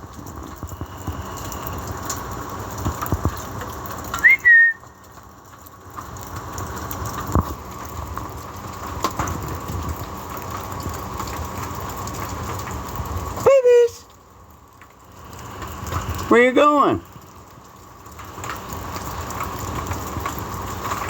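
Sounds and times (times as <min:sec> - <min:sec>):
steady outdoor hiss: 0:00.0 - 0:21.0
short whistle: 0:04.2 - 0:04.9.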